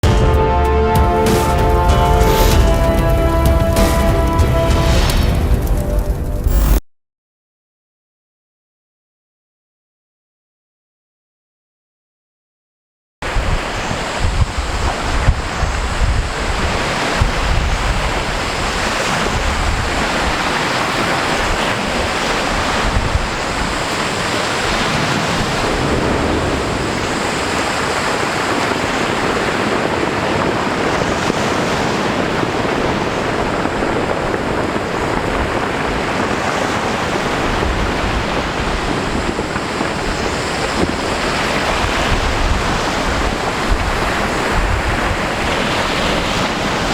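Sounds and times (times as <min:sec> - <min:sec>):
sea waves rushing: 0:00.0 - 0:06.8, 0:13.2 - 0:46.9
wind buffeting microphone: 0:13.2 - 0:46.9.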